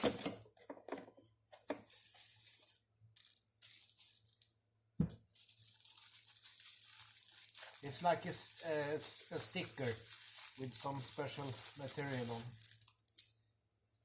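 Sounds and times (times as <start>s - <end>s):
papery rustling and tearing: 5.3s - 13.2s.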